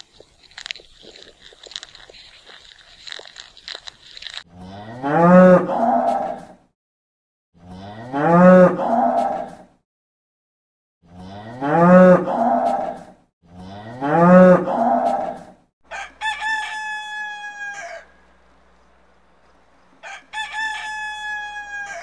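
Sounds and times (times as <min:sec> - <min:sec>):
cow mooing: 0:04.5 - 0:06.4, 0:07.6 - 0:09.4, 0:11.1 - 0:12.8, 0:13.5 - 0:15.4
rooster crowing: 0:15.9 - 0:18.2, 0:20.0 - 0:22.0.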